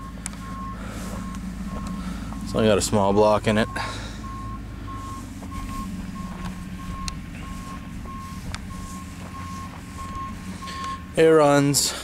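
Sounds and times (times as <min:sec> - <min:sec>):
backup alarm beeping: 0:00.0 - 0:11.5
low engine rumble: 0:00.0 - 0:12.0.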